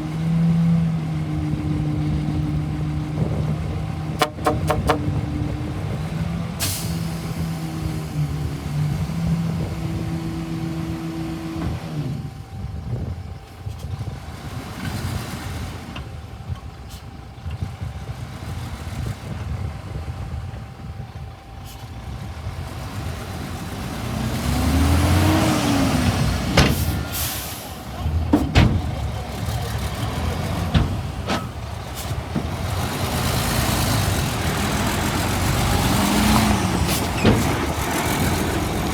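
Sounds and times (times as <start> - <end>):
bulldozer diesel engine revving: 0.0 - 13.0, 21.6 - 38.9.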